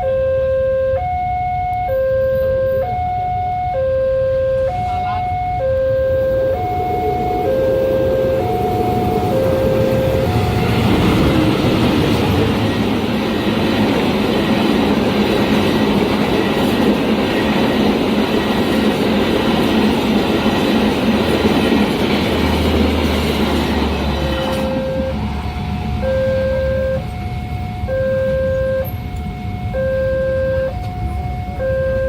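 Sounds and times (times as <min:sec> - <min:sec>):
alternating electronic beeping: 0:00.0 - 0:14.2, 0:24.2 - 0:32.0
train wheels clattering on rails: 0:08.2 - 0:26.0.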